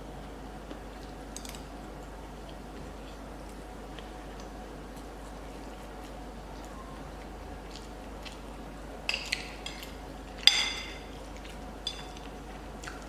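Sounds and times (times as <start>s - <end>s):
cutlery clinking on dish: 9.1s - 11.1s, 11.8s - 12.3s.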